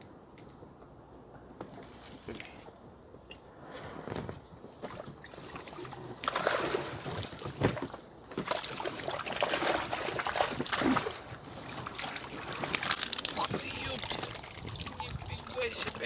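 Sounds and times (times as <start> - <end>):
water sloshing and splashing: 4.7 - 16.0.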